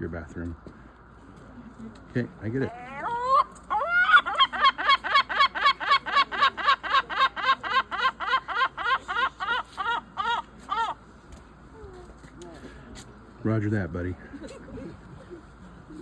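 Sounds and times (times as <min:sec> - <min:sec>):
bird laughing call: 0:02.7 - 0:11.0.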